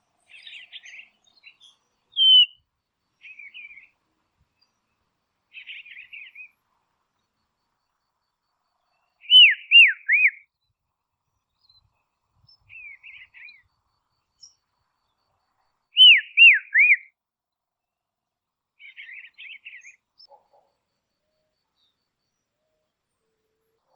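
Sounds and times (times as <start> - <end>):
bird twittering: 0.3 - 2.6, 9.2 - 10.4, 16.0 - 17.0
bird whistling descending notes: 2.2 - 2.6.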